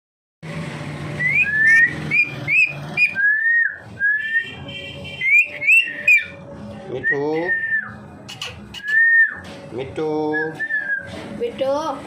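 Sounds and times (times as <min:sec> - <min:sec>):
rising whistles: 0:01.2 - 0:04.4.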